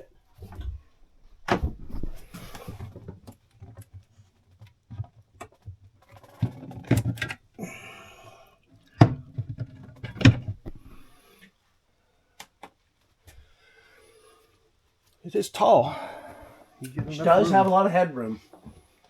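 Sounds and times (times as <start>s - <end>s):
objects knocking and clunking: 0.0s - 7.6s, 8.8s - 11.1s.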